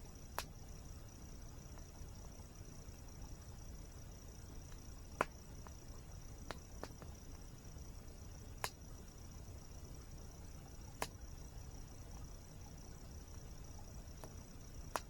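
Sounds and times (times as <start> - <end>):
high insect trill: 0.0 - 15.0
campfire crackling and popping: 0.3 - 0.6, 4.5 - 7.4, 8.0 - 9.0, 10.9 - 11.3, 14.1 - 15.0.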